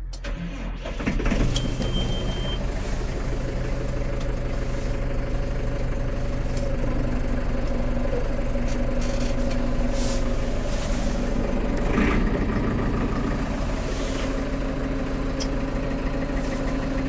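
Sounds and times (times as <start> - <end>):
tractor diesel engine starting: 0.0 - 17.0
high beep: 1.6 - 2.6.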